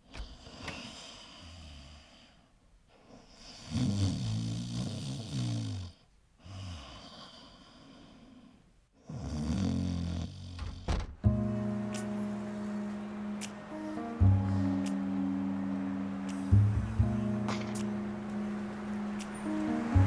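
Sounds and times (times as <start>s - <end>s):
quiet breathing: 0.0s - 9.2s
man snoring: 3.5s - 8.1s, 9.0s - 10.9s
music: 11.2s - 20.0s.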